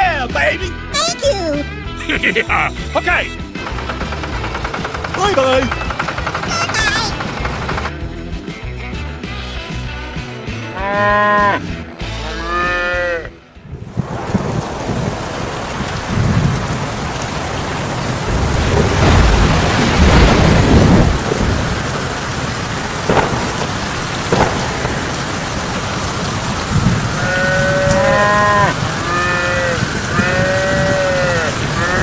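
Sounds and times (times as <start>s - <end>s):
rain-like hiss: 2.2s - 7.0s, 13.7s - 32.0s
animal bleating: 10.6s - 13.4s, 27.2s - 32.0s
low rumble of thunder: 13.7s - 32.0s.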